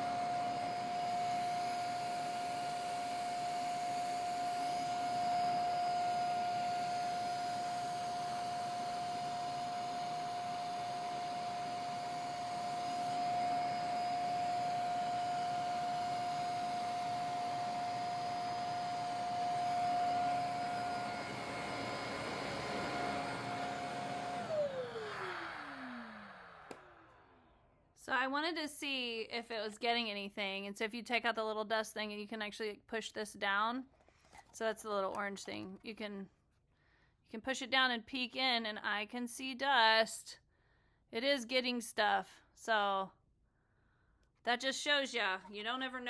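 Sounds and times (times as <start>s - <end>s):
vacuum cleaner motor whine: 0.0s - 27.4s
motor spinning down: 0.0s - 27.5s.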